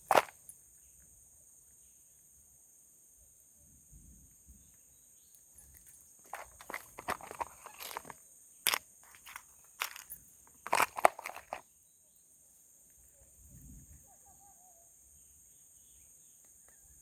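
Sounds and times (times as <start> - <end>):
crunching and rustling clicks: 0.0 - 0.5, 5.6 - 11.6
insects chirring: 0.0 - 17.0.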